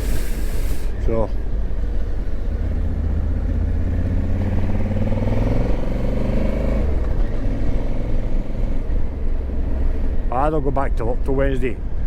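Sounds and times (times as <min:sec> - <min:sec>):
motorcycle engine accelerating: 0:02.4 - 0:08.7.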